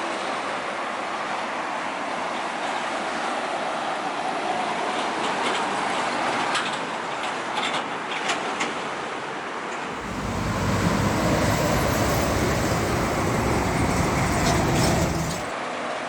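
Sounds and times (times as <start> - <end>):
heavy truck passing: 9.9 - 15.5
steady traffic noise: 9.9 - 15.5.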